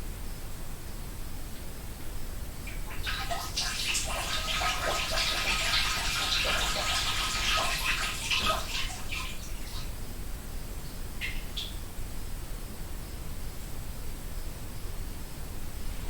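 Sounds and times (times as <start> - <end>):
water dripping: 2.6 - 10.0, 11.2 - 11.7
person urinating into toilet: 2.7 - 10.0.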